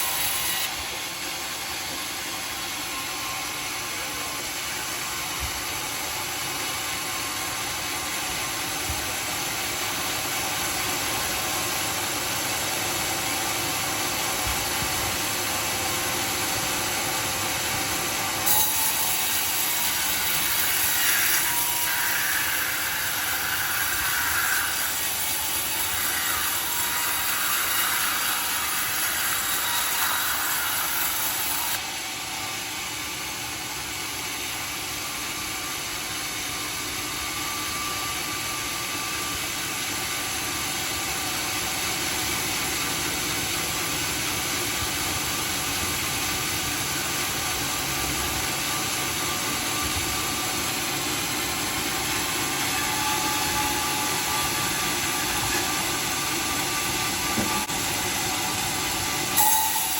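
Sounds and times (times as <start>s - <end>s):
saw blade rasping through wood: 0.0s - 12.9s, 14.6s - 32.6s, 48.5s - 59.9s
sawmill running: 0.0s - 59.9s.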